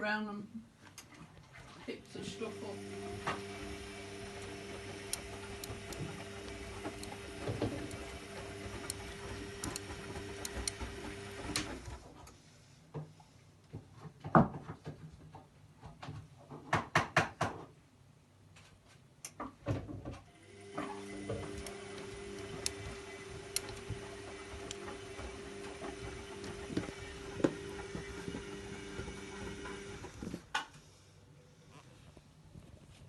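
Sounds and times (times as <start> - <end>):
washing machine knocks and clicks: 16.6 - 17.7
washing machine drum tumbling: 21.1 - 30.4.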